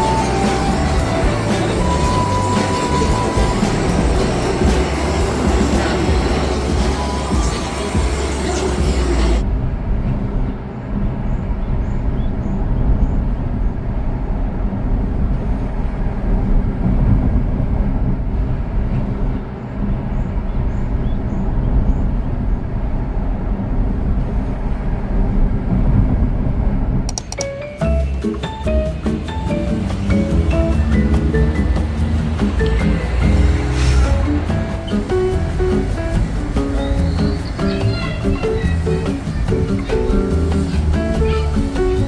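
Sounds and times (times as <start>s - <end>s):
vehicle rumbling: 27.9s - 42.0s.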